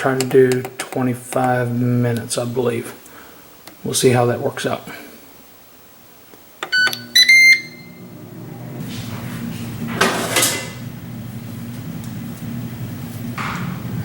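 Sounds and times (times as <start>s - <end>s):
air fryer fan humming: 5.8s - 14.0s
air fryer control panel beeping: 6.6s - 14.0s.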